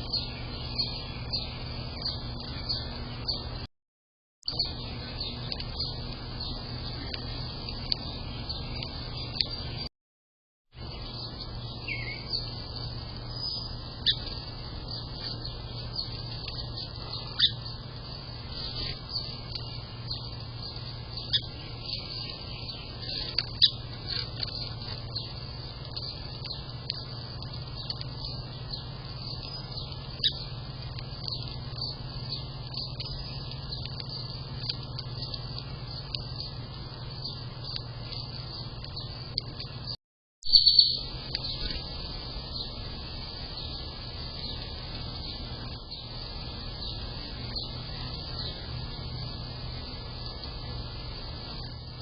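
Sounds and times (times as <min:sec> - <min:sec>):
birds chirping: 0:00.0 - 0:03.7, 0:04.4 - 0:09.9, 0:10.8 - 0:52.0
steady low hum: 0:00.0 - 0:03.7, 0:04.5 - 0:09.9, 0:10.8 - 0:52.0.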